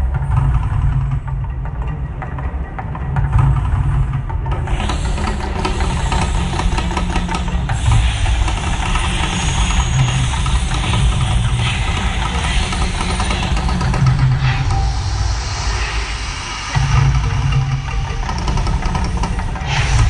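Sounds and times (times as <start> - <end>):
deep steady rumble: 0.0 - 20.0
loud rushing hiss: 4.7 - 18.6.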